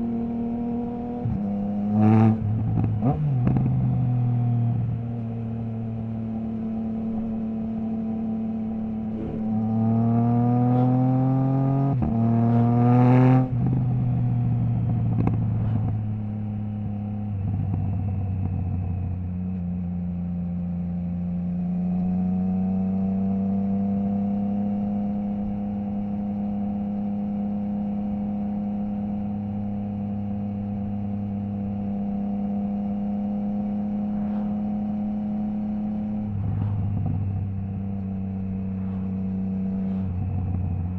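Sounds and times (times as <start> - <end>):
motorcycle engine revving: 0.0 - 40.9
exhaust crackles: 8.7 - 19.6, 32.8 - 40.9.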